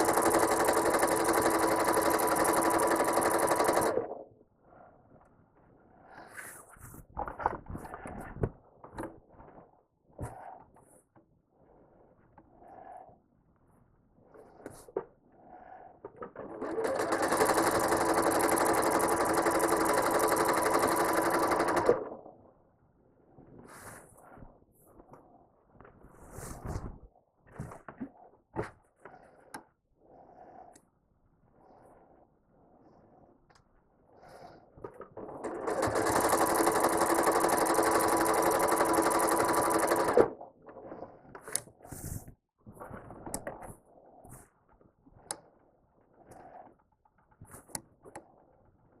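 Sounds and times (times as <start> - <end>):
sewing machine stitching: 0.0 - 4.2, 16.2 - 22.3, 35.0 - 40.4.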